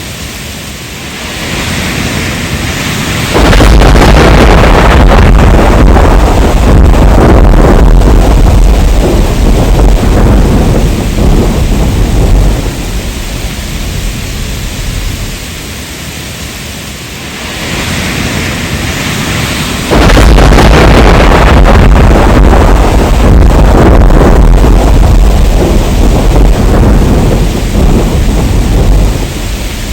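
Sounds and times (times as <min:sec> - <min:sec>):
steady rain: 0:00.0 - 0:29.9
thunder rumbling: 0:00.0 - 0:29.9.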